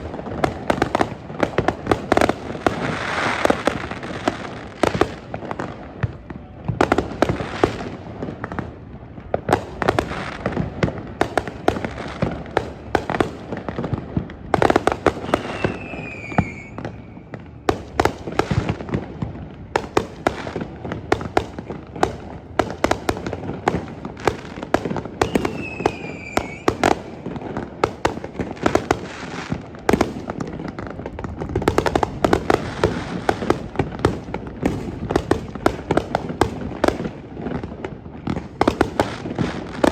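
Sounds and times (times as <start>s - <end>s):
fireworks banging: 0.0s - 39.9s
falling firework whistles: 14.6s - 17.5s, 25.1s - 27.4s.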